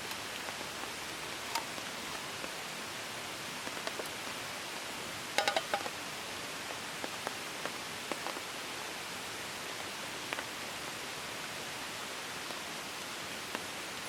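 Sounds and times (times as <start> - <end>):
rain falling: 0.0 - 14.0
raindrops tapping: 5.3 - 6.0.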